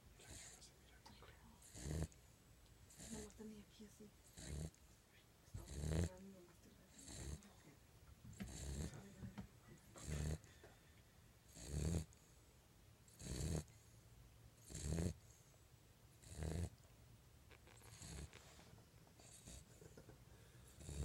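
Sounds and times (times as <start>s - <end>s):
puppy snoring: 0.2s - 0.8s, 1.5s - 2.3s, 2.9s - 3.6s, 4.2s - 4.8s, 5.5s - 7.6s, 8.3s - 10.6s, 11.5s - 12.4s, 13.1s - 14.0s, 14.6s - 15.5s, 16.1s - 16.8s, 17.5s - 21.0s.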